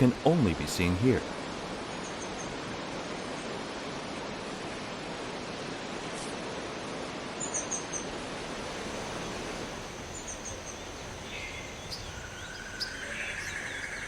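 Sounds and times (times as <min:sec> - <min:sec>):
steady rushing hiss: 0:00.0 - 0:14.0
small birds chirping: 0:09.1 - 0:14.0.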